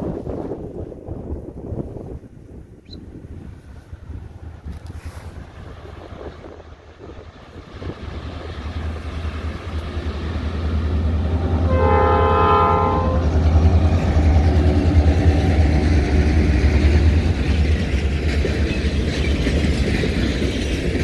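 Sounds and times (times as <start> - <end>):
diesel locomotive rumbling: 0.0 - 21.0
train wheels on rails: 0.0 - 21.0
train horn blast: 11.0 - 15.5.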